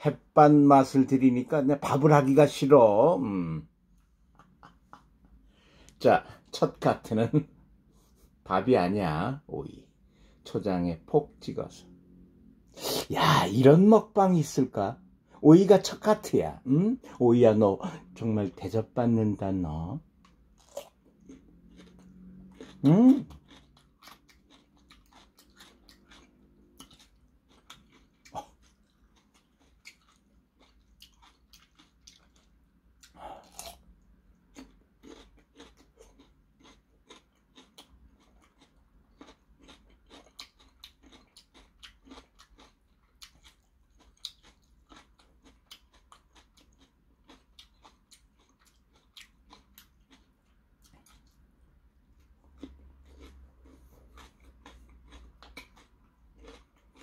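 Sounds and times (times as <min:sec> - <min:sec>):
crunching and chewing cucumber: 0:17.7 - 0:57.0.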